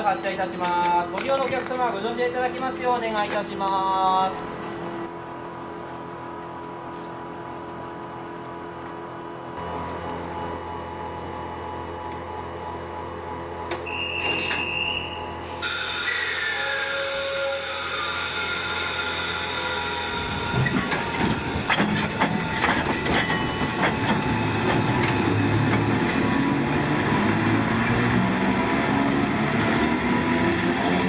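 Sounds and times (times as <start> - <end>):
train rumble: 9.6 - 31.0
short high tone: 13.9 - 20.6
train wheels clattering: 20.1 - 26.3.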